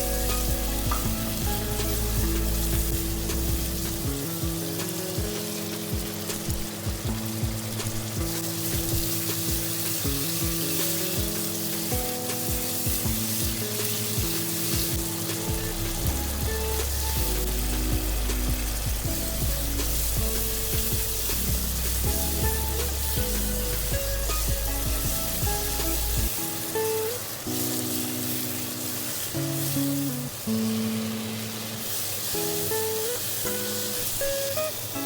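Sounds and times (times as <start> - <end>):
background music with bass line: 0.0 - 26.8
vegetables sizzling in oil: 0.0 - 35.0.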